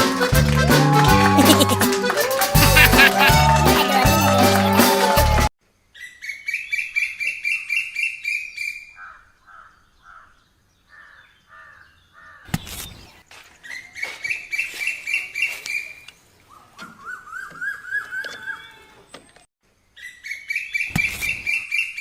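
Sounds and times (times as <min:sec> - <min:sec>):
bird calling: 0:06.0 - 0:19.2.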